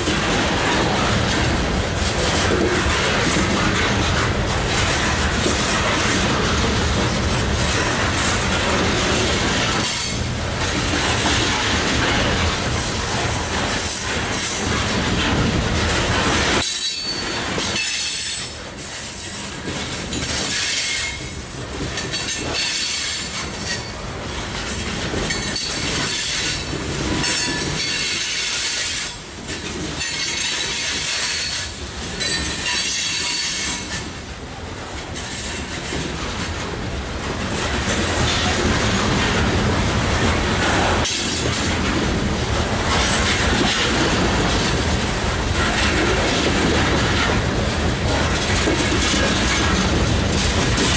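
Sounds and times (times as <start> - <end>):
train wheels clattering on rails: 0.0 - 50.9.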